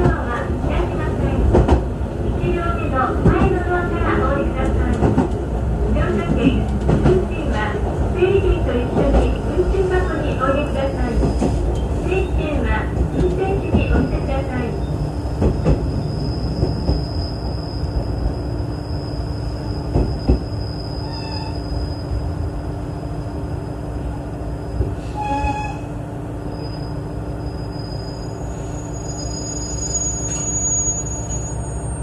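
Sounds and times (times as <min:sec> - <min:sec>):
diesel railcar rumbling: 0:00.0 - 0:32.0
high-pitched running gear squeal: 0:26.6 - 0:32.0.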